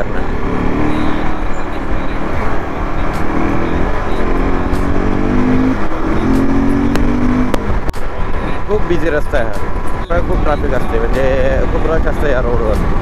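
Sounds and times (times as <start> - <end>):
motorcycle engine accelerating: 0.0 - 8.8
sharp click: 6.9 - 8.0.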